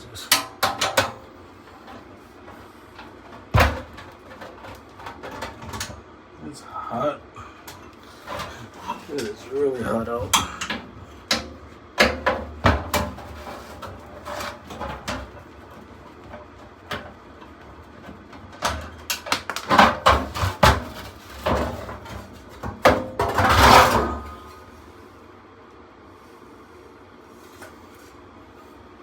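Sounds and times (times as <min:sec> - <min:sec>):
metal parts clunking and knocking: 0:10.1 - 0:15.4.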